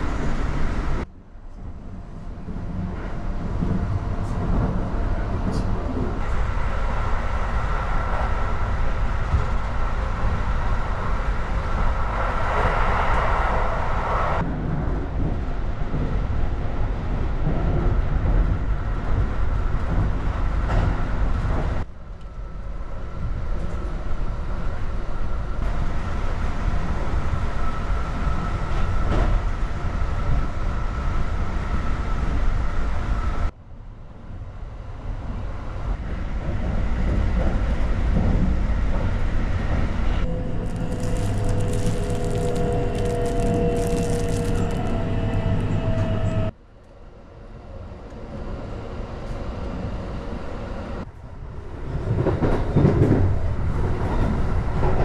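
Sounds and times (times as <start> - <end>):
train wheels rumbling: 35.2 - 46.6.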